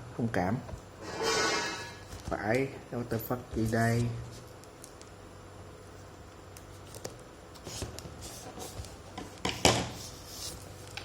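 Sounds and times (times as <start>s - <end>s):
rustling scrape: 1.0s - 2.1s.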